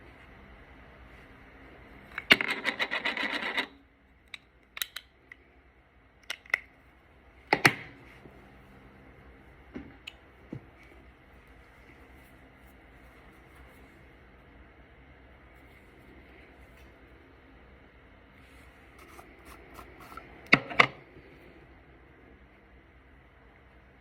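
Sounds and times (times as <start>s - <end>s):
makeup brush rubbing: 18.4s - 20.3s.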